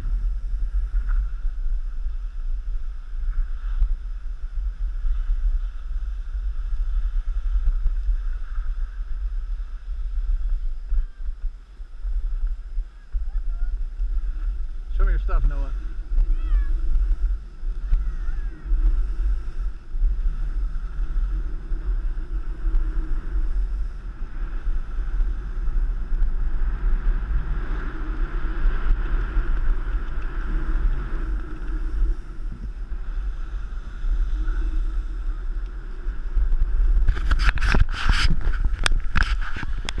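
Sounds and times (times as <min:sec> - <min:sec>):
skis sliding on snow: 0:00.0 - 0:40.0
wind buffeting microphone: 0:00.0 - 0:40.0.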